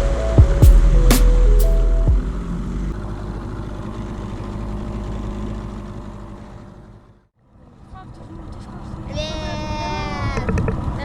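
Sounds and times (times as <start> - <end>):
music notes: 0.0 - 2.4.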